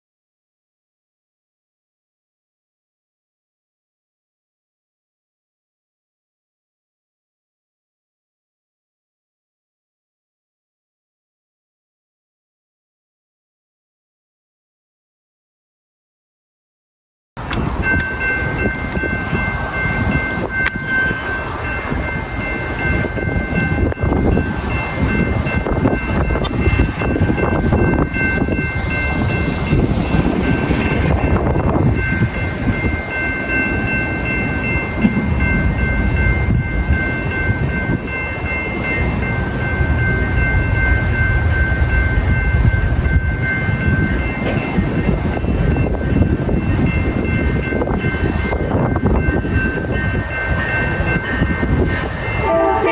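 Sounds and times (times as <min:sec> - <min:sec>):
train rumbling on rails: 0:17.4 - 0:52.9
steady high tones: 0:45.8 - 0:52.9.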